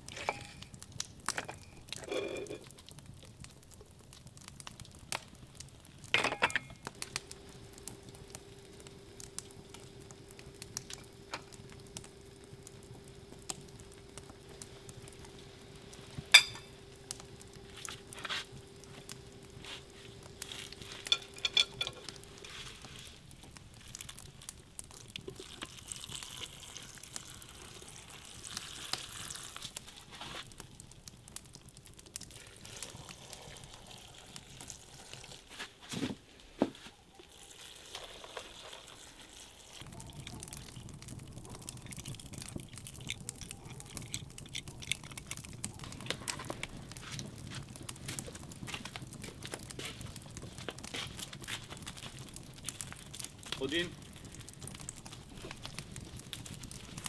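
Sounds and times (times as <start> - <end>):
sizzling and crackling: 0.0 - 57.0
faint steady hum: 5.3 - 35.4.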